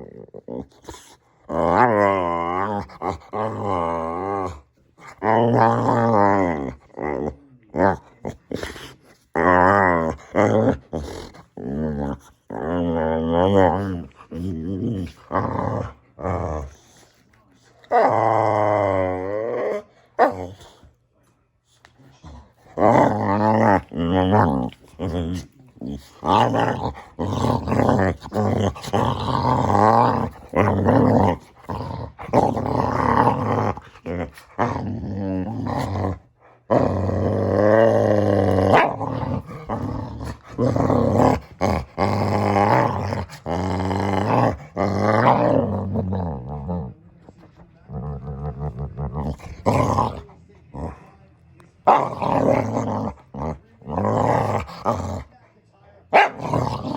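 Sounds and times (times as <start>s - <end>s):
dog grumbling call: 22.3s - 47.0s, 51.8s - 55.3s.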